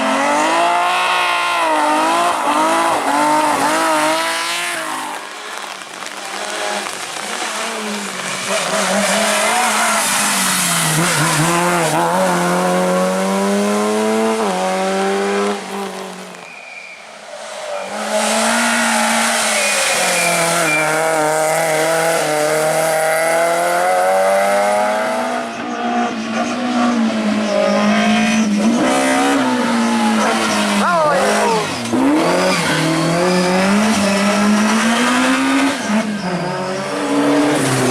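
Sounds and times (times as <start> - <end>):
rally car engine revving: 0.0 - 16.4, 17.7 - 37.9.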